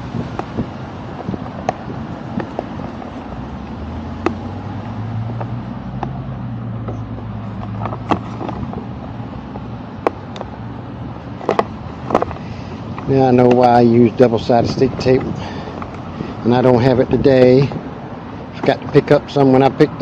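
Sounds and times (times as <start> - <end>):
vehicle engine humming: 0.0 - 20.0
equipment clicks and taps: 0.2 - 6.2, 6.8 - 10.6, 11.4 - 13.8, 15.2 - 16.0.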